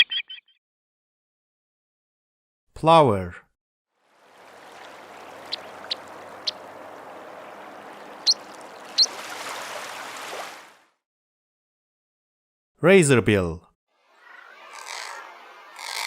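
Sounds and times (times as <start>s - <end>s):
water noise: 4.0s - 10.9s
plover piping calls: 4.6s - 9.3s, 14.2s - 16.0s.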